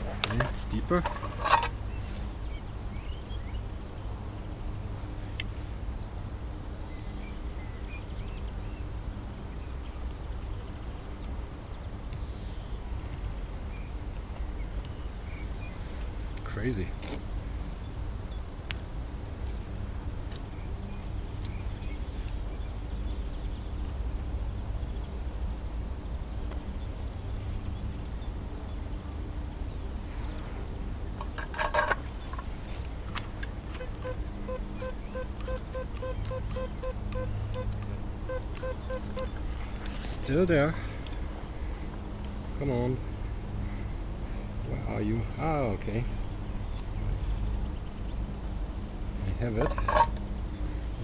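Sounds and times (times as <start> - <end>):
scraping and clicking: 0.0 - 1.7, 31.2 - 32.5, 49.6 - 50.2
small birds chirping: 0.0 - 25.2, 26.4 - 51.0
low outdoor rumble: 0.0 - 51.0.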